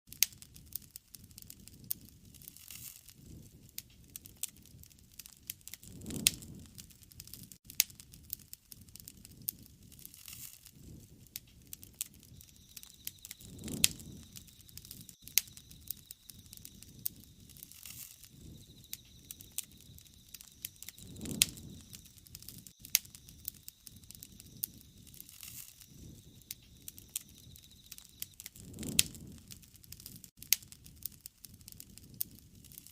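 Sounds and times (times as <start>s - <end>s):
wood fire crackling and popping: 0.1s - 32.9s
flames rushing: 0.2s - 32.9s.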